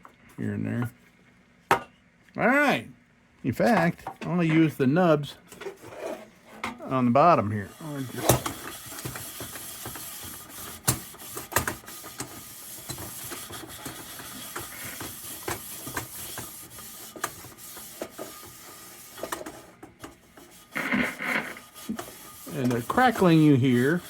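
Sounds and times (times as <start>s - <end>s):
steel wool scrubbing metal: 6.9s - 24.0s
radio static crackles: 20.8s - 21.6s.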